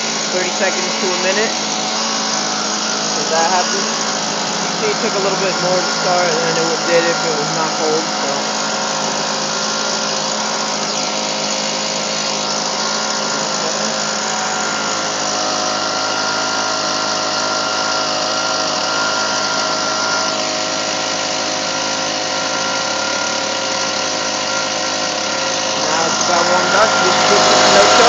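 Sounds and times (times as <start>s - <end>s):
leaf blower engine running: 0.0s - 28.0s.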